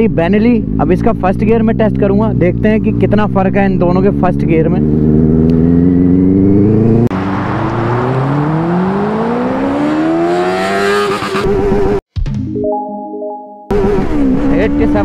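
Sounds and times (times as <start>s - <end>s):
motorcycle engine accelerating: 0.0s - 12.0s, 13.7s - 15.0s.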